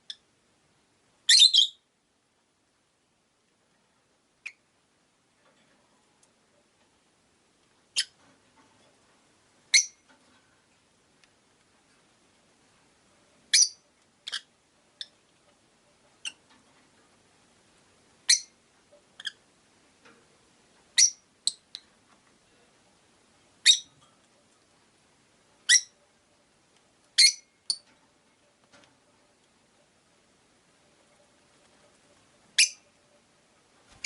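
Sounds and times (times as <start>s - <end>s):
birds chirping: 32.5s - 32.9s.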